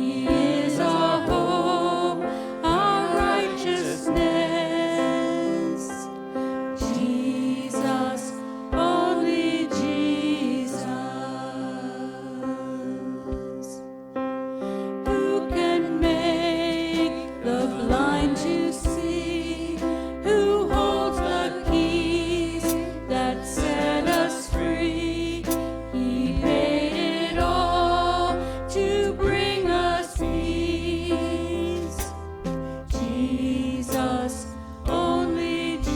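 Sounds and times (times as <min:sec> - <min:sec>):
person singing: 0:00.0 - 0:13.8, 0:15.0 - 0:35.9
low bass notes: 0:16.0 - 0:35.9.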